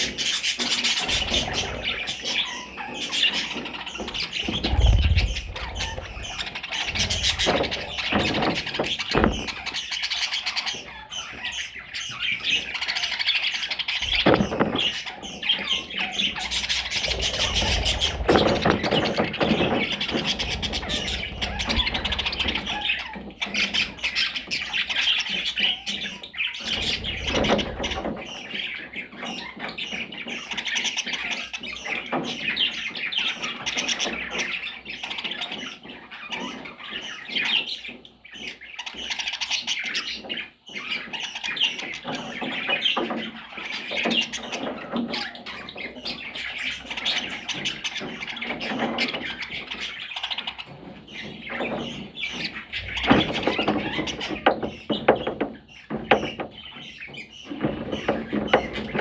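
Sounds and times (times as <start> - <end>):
parrots chattering: 0.0 - 29.5.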